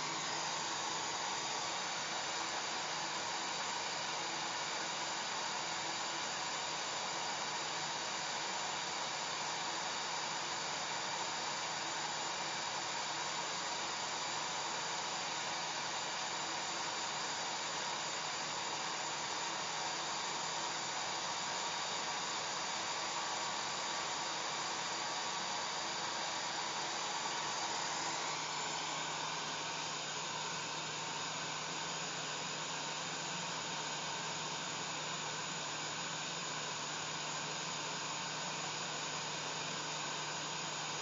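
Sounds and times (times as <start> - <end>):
hair dryer running: 0.0 - 2.8, 23.6 - 41.0.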